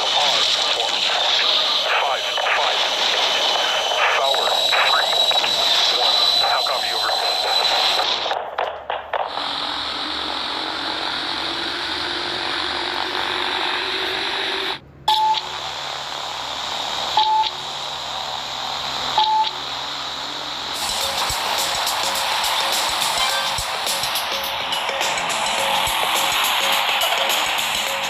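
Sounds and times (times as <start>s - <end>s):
steady rushing noise: 0.0s - 14.8s, 15.5s - 28.0s
short high beeps: 15.1s - 15.5s, 17.2s - 17.6s, 19.2s - 19.6s.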